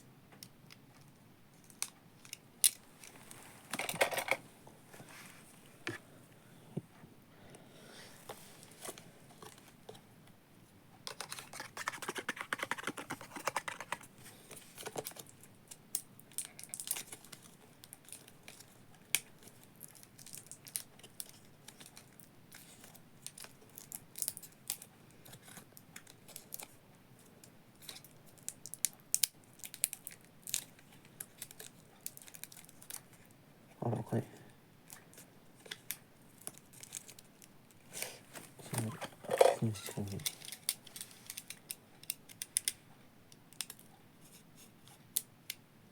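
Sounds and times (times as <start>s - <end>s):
plastic parts clicking and tapping: 3.7s - 4.4s, 11.1s - 14.1s, 38.7s - 42.8s
packaging rustling and crinkling: 35.6s - 41.7s.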